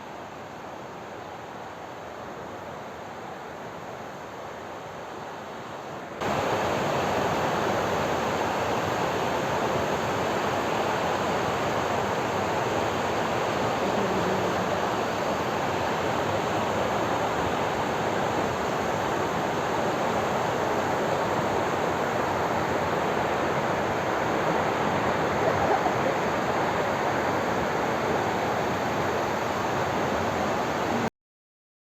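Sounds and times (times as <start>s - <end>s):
waterfall roaring: 6.2s - 31.1s.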